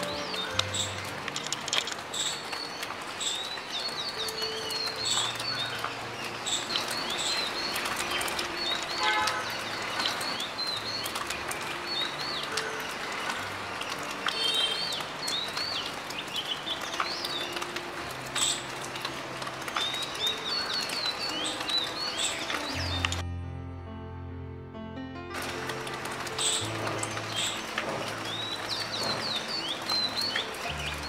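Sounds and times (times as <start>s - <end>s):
songbirds chirping: 0.0s - 23.3s, 25.4s - 31.0s.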